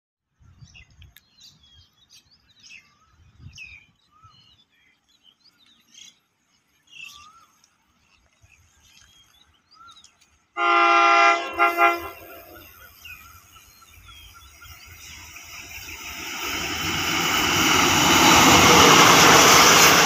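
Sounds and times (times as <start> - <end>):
small birds chirping: 0.6 - 10.6, 12.2 - 19.9
low rumbles: 14.9 - 20.0.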